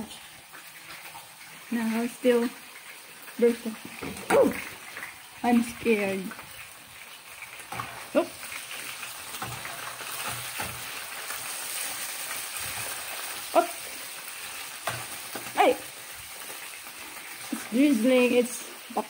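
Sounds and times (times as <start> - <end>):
liver sizzling in frying pan: 0.0 - 19.0
metal spatula stirring: 7.7 - 13.0.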